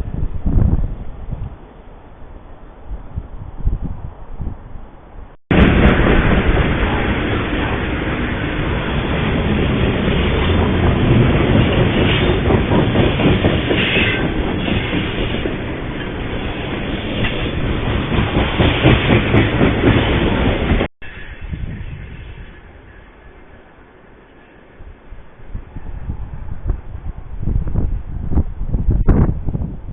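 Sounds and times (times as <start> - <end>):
wheels clattering over rail joints: 5.5 - 20.9
train wheels rumbling on rails: 5.5 - 29.9.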